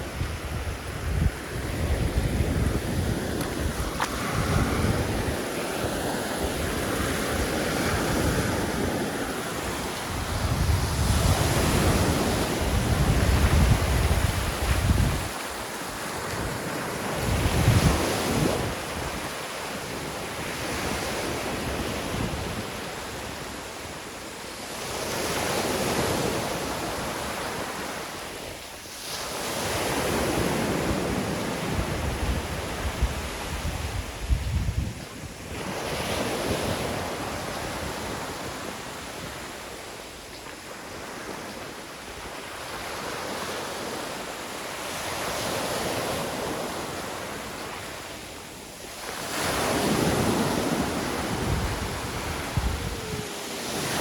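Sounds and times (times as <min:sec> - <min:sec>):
wind gusting on microphone: 0:00.0 - 0:24.1, 0:29.1 - 0:40.0, 0:49.1 - 0:54.0
sea waves washing onto beach: 0:00.0 - 0:54.0.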